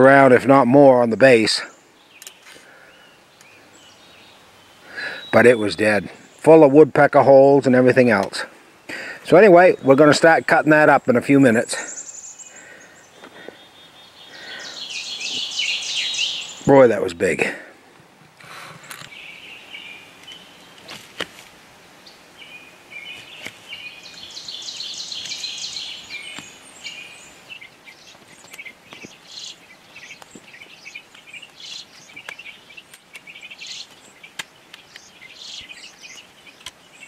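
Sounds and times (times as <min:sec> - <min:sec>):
small birds chirping: 0:00.0 - 0:17.7, 0:18.4 - 0:21.2, 0:22.0 - 0:37.0
sharp clicks: 0:31.1 - 0:36.8.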